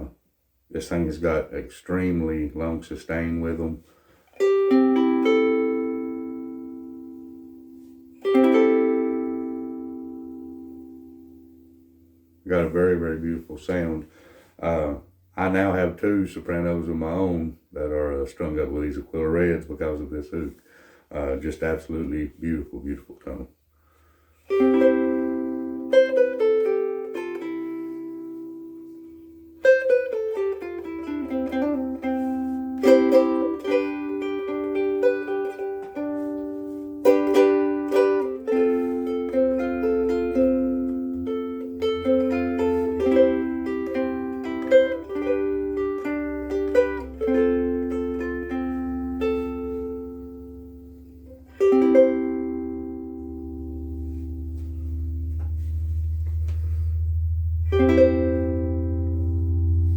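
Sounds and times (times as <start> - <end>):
ukulele playing: 2.0 - 14.0, 24.4 - 59.9.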